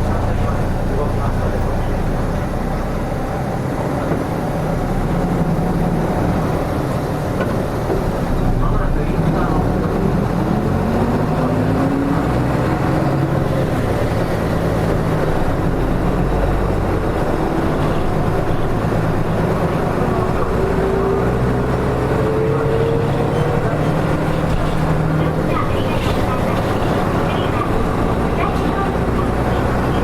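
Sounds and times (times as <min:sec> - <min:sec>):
bus diesel engine with whine: 0:00.0 - 0:30.0.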